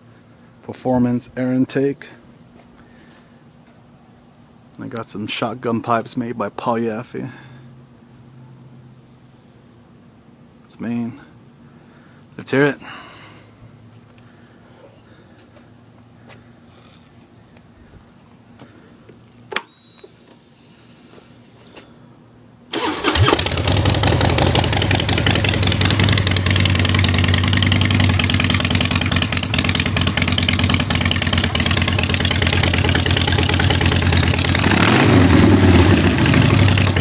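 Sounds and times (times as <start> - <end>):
motorcycle engine running: 22.8 - 37.0.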